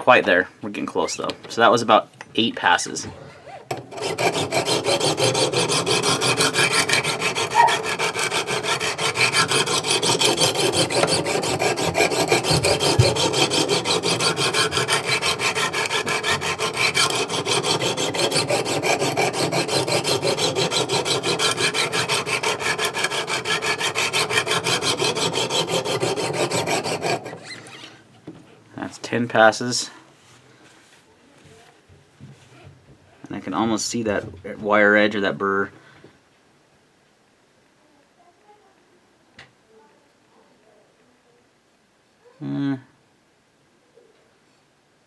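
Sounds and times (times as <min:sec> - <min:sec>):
stone scraping knife blade: 0:03.7 - 0:27.7.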